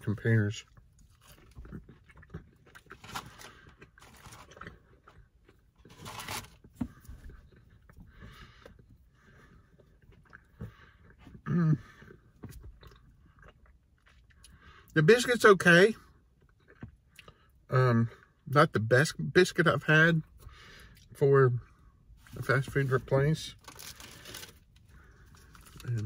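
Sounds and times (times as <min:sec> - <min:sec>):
crunching hard biscuit: 0:00.6 - 0:08.9, 0:23.5 - 0:26.0.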